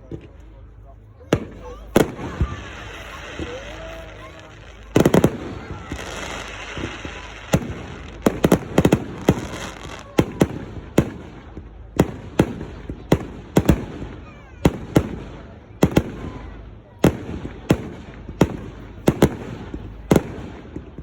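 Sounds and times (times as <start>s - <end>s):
fireworks banging and cracking: 0.0s - 21.0s.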